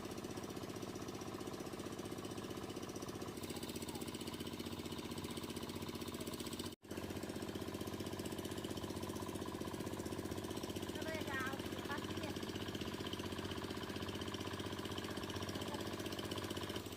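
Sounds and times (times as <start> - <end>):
small engine chugging: 0.0 - 16.9.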